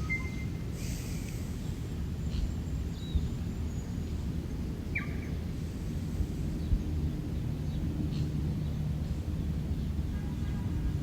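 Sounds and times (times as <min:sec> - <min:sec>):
bird chirps: 0:00.0 - 0:00.6.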